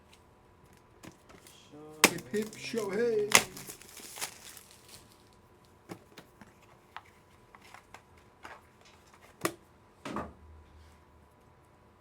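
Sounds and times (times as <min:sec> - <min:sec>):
plastic card cases clicking: 0:01.0 - 0:04.7.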